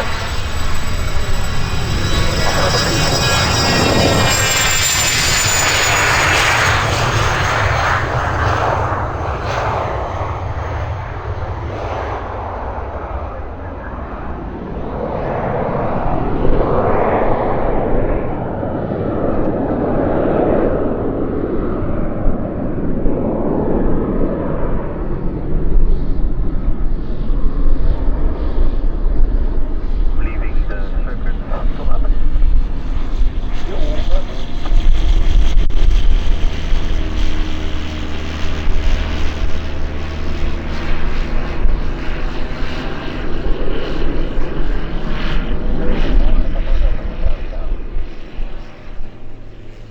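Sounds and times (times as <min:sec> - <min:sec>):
jet engine roar: 0:00.0 - 0:49.9.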